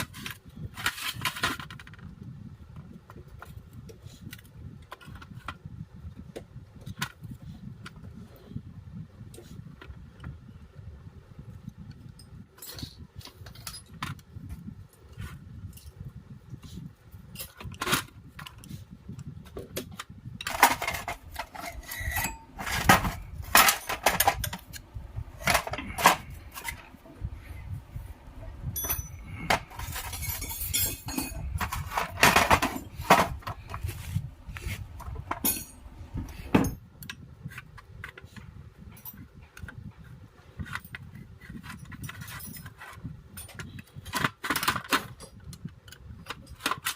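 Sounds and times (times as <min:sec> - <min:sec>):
metal tools clinking and scraping: 0:12.6 - 0:14.2, 0:20.4 - 0:27.0, 0:28.6 - 0:36.8, 0:40.6 - 0:45.4
low rumble: 0:20.4 - 0:36.8.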